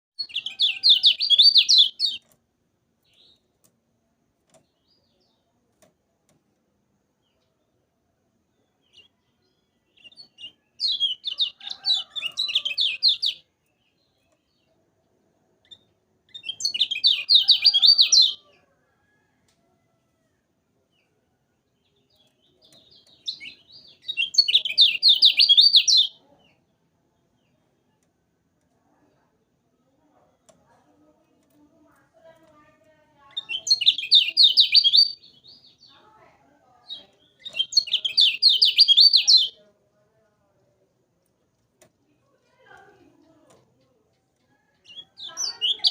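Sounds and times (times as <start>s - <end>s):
songbird chattering song: 0.2s - 2.4s, 8.4s - 14.8s, 15.6s - 18.7s, 20.9s - 28.1s, 33.2s - 36.0s, 36.8s - 39.6s, 42.7s - 45.9s.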